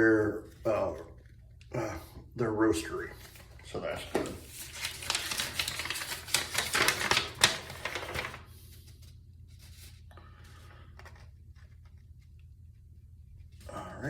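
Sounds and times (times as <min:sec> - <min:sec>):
paper packaging crinkling: 0:03.1 - 0:10.0.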